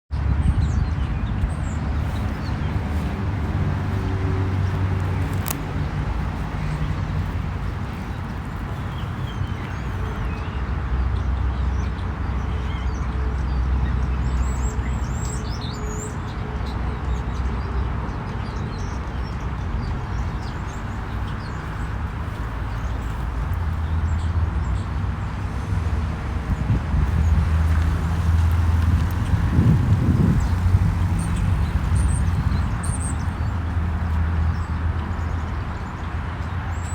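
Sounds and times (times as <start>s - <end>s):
steady low rumble: 0.4s - 9.9s, 19.5s - 36.8s
small birds chirping: 0.6s - 10.5s, 18.6s - 36.9s.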